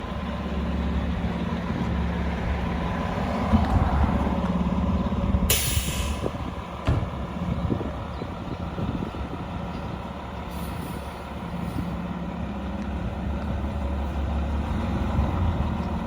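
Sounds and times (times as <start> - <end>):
diesel engine running: 0.0 - 16.0
air brakes hissing: 5.5 - 6.4, 10.5 - 12.0.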